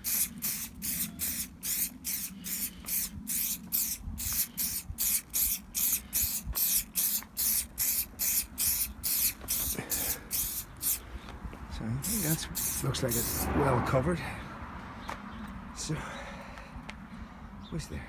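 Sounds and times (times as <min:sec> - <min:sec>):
spray bottle hissing squirts: 0:00.0 - 0:11.0, 0:12.0 - 0:13.4.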